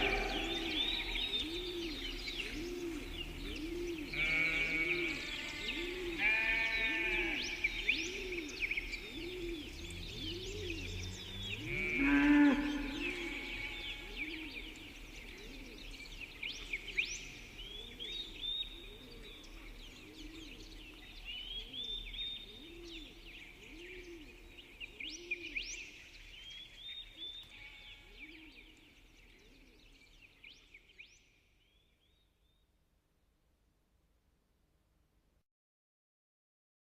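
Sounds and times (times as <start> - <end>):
cow mooing: 0.0 - 0.8, 11.1 - 13.7
birds chirping and singing: 0.0 - 31.3.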